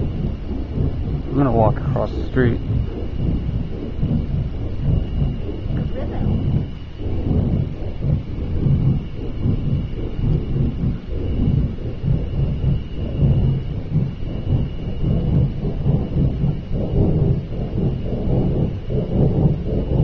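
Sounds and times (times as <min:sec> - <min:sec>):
deep pulsing rumble: 0:00.0 - 0:20.0.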